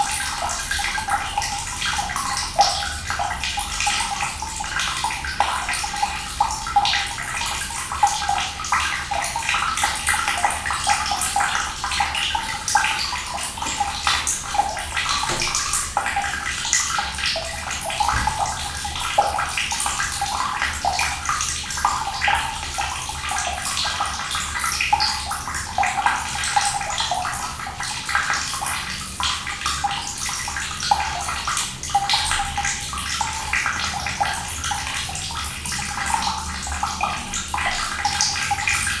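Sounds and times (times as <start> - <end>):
running water splashing: 8.4 - 21.8.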